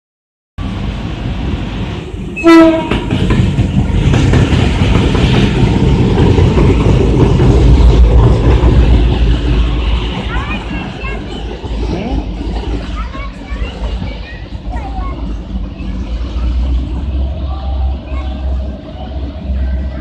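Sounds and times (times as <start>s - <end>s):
train rumbling: 0.6s - 20.0s
train horn blast: 2.4s - 3.1s.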